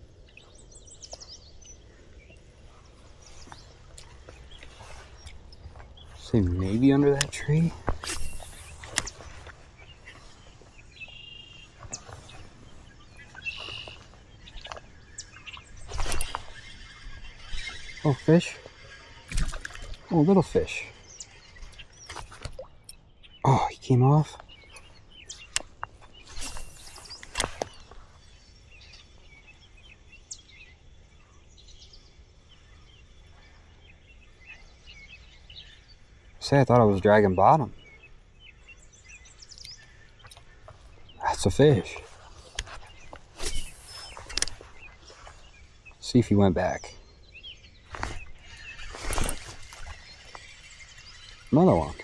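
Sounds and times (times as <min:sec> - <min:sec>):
faint outdoor background noise: 0:00.0 - 0:52.0
high buzzy bird calls: 0:00.0 - 0:52.0
quiet riverside ambience: 0:00.0 - 0:52.0
sharp clicks: 0:07.1 - 0:09.5, 0:15.9 - 0:16.7, 0:19.3 - 0:20.6, 0:22.0 - 0:23.0, 0:24.7 - 0:27.8, 0:43.4 - 0:44.6, 0:47.9 - 0:50.6.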